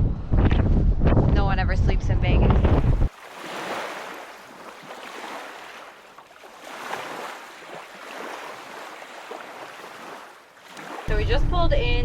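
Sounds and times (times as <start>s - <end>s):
small waves lapping on shore: 3.0s - 11.2s.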